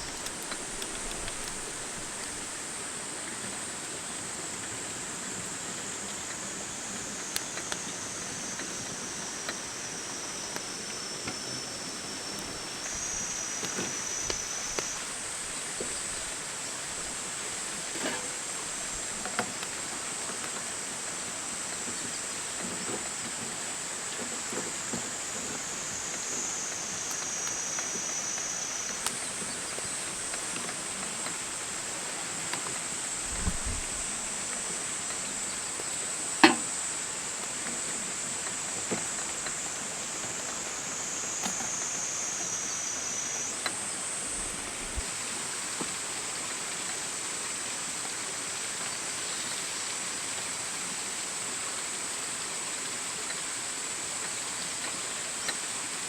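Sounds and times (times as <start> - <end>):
campfire crackling: 0.0 - 3.7, 5.4 - 20.6.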